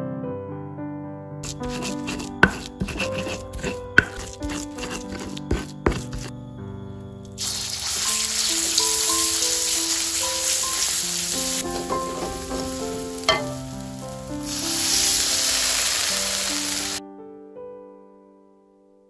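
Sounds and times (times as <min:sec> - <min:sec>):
soft background music: 0:01.2 - 0:19.0
spice paste sizzling in hot oil: 0:01.4 - 0:06.3, 0:07.4 - 0:17.0.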